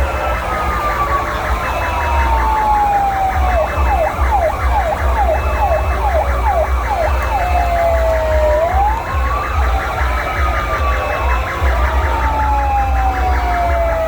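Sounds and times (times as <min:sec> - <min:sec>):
fire truck sirens wailing and yelping: 0:00.0 - 0:14.0.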